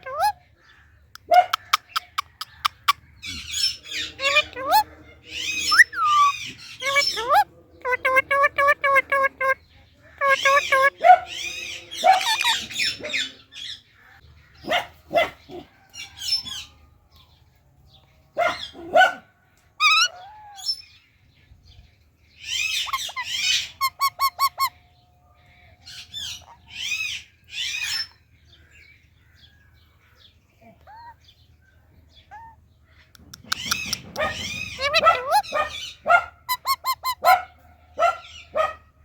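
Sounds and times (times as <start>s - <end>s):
parakeet screeching: 0.0s - 0.3s, 3.4s - 9.6s, 10.2s - 13.3s, 19.8s - 20.9s, 22.4s - 24.8s, 25.9s - 28.2s, 32.3s - 32.6s, 33.5s - 37.4s
parakeet chirps: 1.2s - 9.6s, 10.2s - 13.4s, 22.4s - 24.8s, 33.2s - 37.4s.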